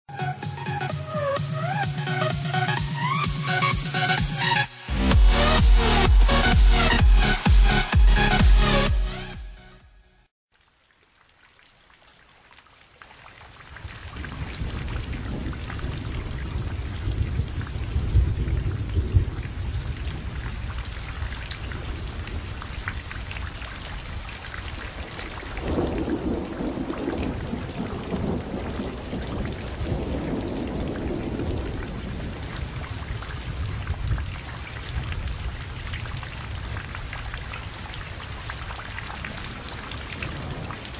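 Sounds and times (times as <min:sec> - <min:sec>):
steady rain falling: 0:10.5 - 0:40.9
low rolls of thunder: 0:13.8 - 0:40.9.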